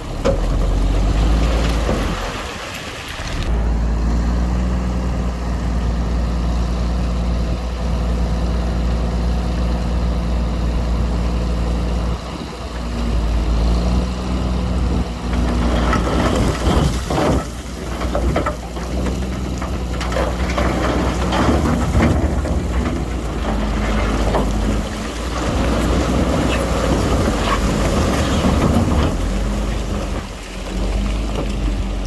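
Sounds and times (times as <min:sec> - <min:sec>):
heavy diesel engine running: 0:00.0 - 0:32.0
rough clattering: 0:15.0 - 0:32.0.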